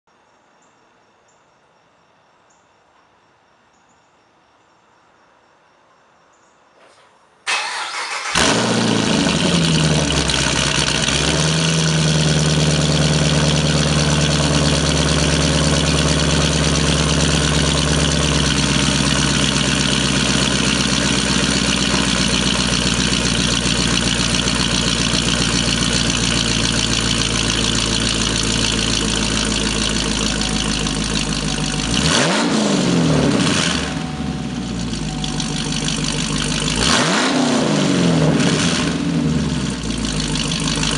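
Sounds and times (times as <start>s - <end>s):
car engine starting: 6.9s - 40.9s
car engine idling: 7.5s - 40.9s
engine revving: 7.5s - 40.9s.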